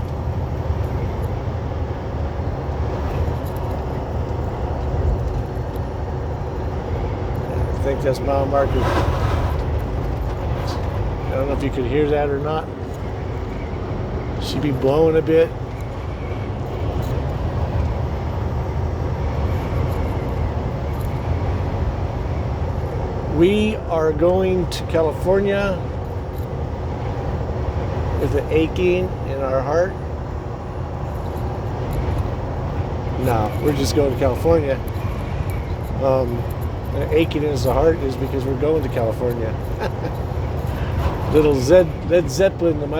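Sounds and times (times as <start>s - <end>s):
road noise: 0.0s - 42.9s
truck engine rumble: 0.0s - 42.9s
tyre noise: 7.4s - 11.8s.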